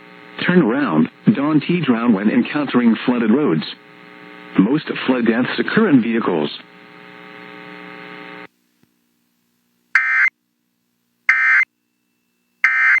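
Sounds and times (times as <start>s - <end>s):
buzzing hum: 0.0s - 8.6s.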